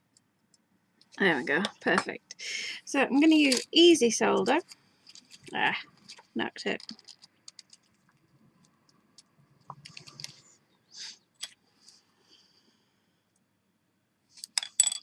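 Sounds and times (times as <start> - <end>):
jewellery pieces clicking: 14.4 - 15.0.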